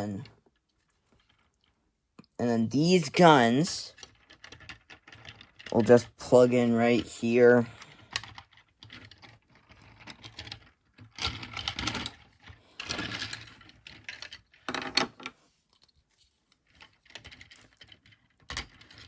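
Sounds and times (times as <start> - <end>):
plastic toy parts clicking: 3.9 - 6.1, 8.0 - 15.3, 16.6 - 19.0.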